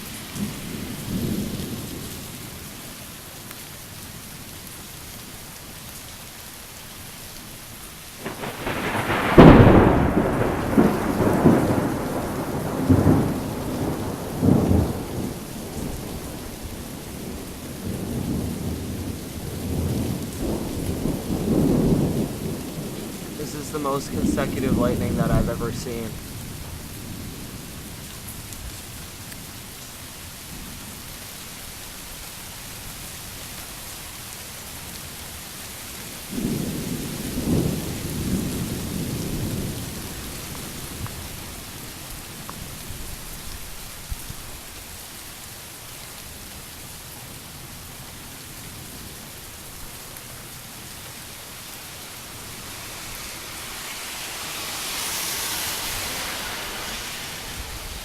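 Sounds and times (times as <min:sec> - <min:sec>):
rain hissing: 0:07.9 - 0:29.6, 0:36.3 - 0:46.4, 0:48.7 - 0:58.0
thunder rumble: 0:08.2 - 0:27.5
higher hiss: 0:23.4 - 0:26.2.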